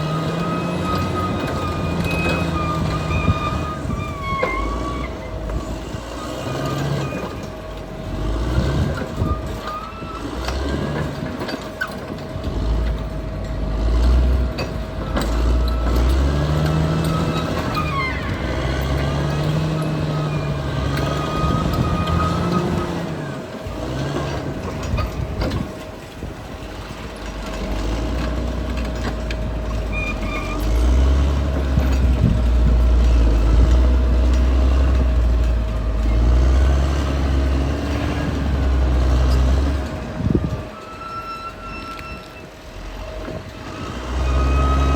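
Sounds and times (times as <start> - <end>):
bulldozer diesel engine working: 0.0 - 44.9.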